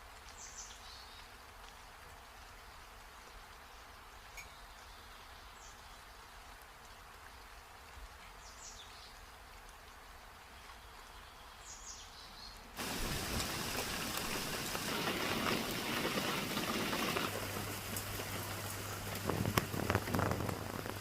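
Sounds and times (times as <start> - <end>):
heavy rain pouring: 12.7 - 21.0.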